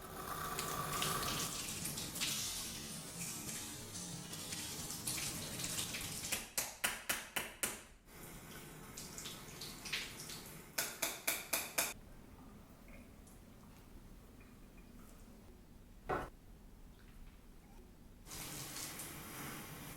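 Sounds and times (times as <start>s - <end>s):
tap water running: 0.0s - 6.4s, 12.0s - 16.3s, 18.3s - 19.9s.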